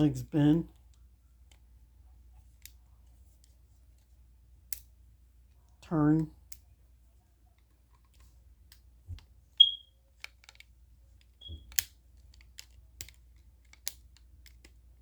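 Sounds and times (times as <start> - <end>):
short high-pitched chirp: 9.6 - 9.8.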